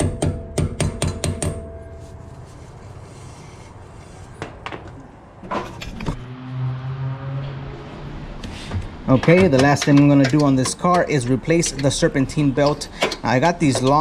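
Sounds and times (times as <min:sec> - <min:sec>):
rapid sharp metallic knocks: 0:00.0 - 0:01.7
low steady hum: 0:00.4 - 0:06.0
metal clanks: 0:09.1 - 0:14.0.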